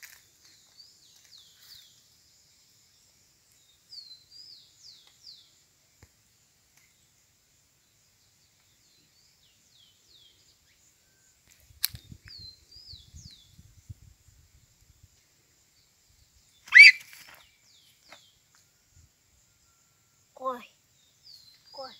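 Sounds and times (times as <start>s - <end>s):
high falling bird chirps: 15.7s - 19.1s
bird call sweeping upward: 16.6s - 17.5s.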